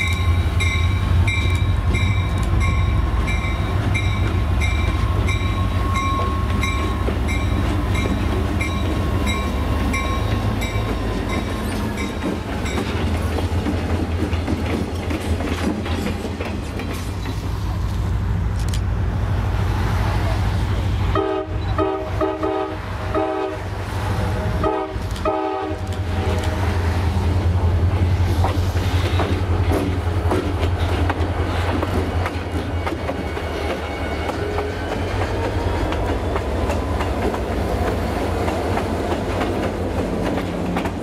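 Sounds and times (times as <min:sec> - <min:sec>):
wheels clicking over rail joints: 0:00.0 - 0:18.9, 0:28.4 - 0:41.0
train horn short blasts: 0:21.1 - 0:23.7, 0:24.3 - 0:26.7.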